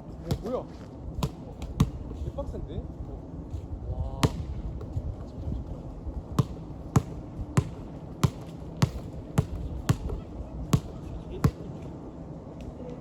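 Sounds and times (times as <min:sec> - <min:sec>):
basketball bouncing on hard court: 0:06.4 - 0:11.6.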